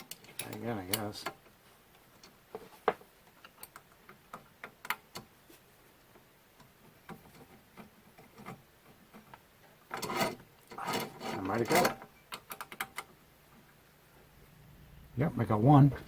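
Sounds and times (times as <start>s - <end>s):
small bolt and tool clicking on metal: 0.0s - 1.6s, 3.4s - 5.3s, 6.6s - 13.2s
metal rattling scrape: 9.9s - 12.0s.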